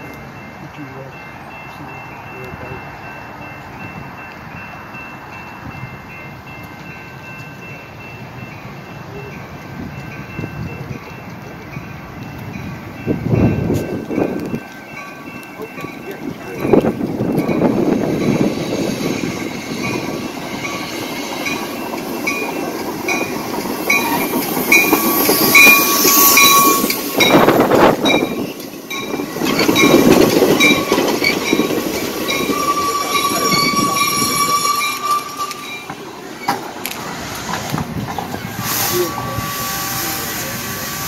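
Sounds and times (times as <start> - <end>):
train wheels rumbling: 0.0 - 41.0
brakes squealing: 28.4 - 41.0.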